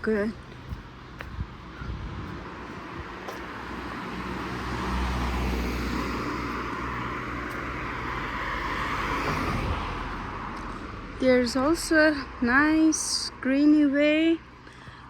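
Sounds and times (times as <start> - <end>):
car passing: 0.0 - 13.5.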